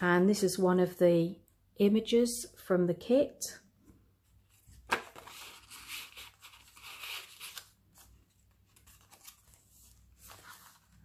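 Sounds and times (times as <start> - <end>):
paper rustling: 4.5 - 11.0.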